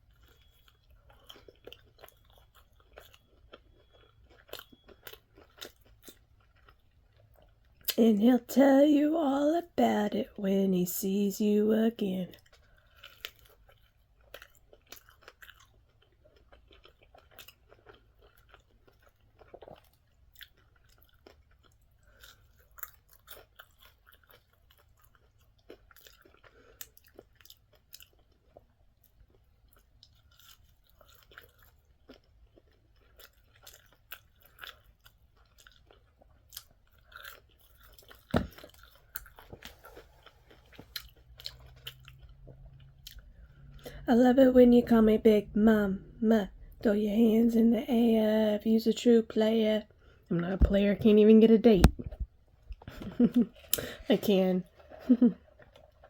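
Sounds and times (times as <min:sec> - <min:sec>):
person chewing fried food: 0:00.0 - 0:08.0, 0:12.3 - 0:44.1, 0:49.9 - 0:50.3, 0:51.9 - 0:56.0.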